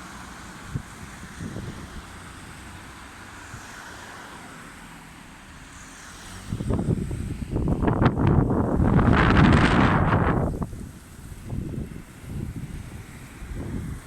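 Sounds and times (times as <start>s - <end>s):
wind buffeting microphone: 0.5s - 3.7s, 6.4s - 14.0s.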